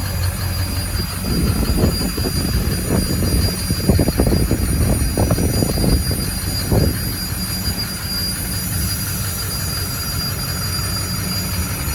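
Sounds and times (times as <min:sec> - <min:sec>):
low bumps: 0:00.0 - 0:08.6.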